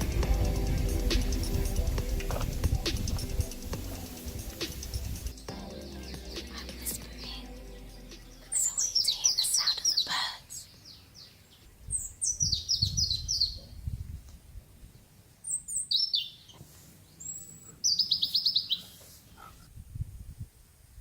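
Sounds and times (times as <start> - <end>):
songbird singing: 0.0 - 19.6.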